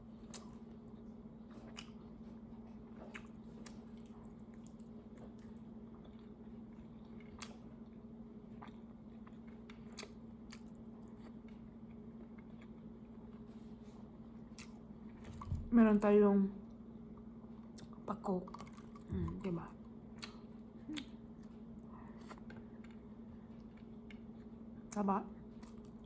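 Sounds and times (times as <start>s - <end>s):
steady low hum: 0.0s - 26.0s
person chewing: 0.2s - 13.8s, 14.5s - 14.8s, 20.2s - 24.5s.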